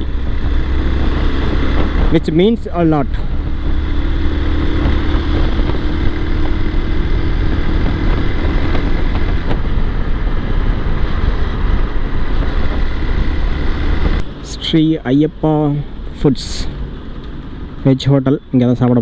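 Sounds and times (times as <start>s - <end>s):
wind rumble on microphone: 0.0s - 15.0s
motorcycle engine drone: 0.0s - 19.0s.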